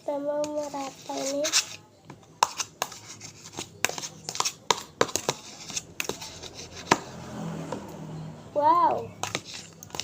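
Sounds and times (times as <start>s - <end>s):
slime scraping and rubbing: 0.4s - 1.8s, 2.5s - 7.1s, 9.2s - 10.0s.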